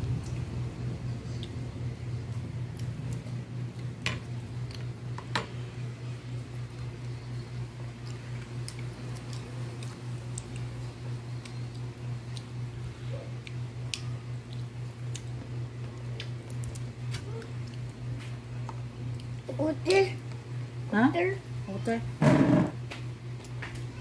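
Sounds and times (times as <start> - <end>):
low pulsing hum: 0.0 - 24.0
toddler chewing sweetcorn: 6.4 - 18.3.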